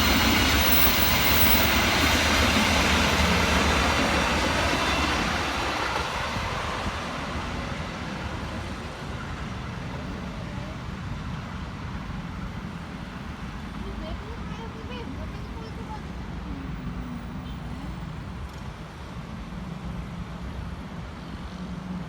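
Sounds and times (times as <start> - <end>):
train wheels on rails: 0.0 - 22.0.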